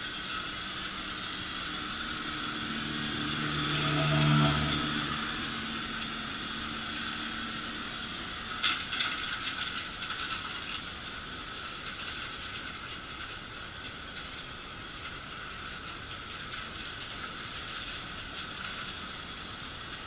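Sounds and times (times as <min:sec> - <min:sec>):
vacuum cleaner running: 0:00.0 - 0:09.0.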